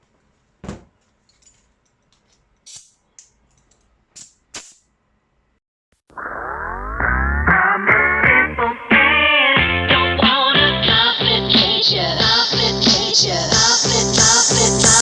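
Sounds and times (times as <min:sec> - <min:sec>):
loud music with rising sweep: 0:06.2 - 0:10.9.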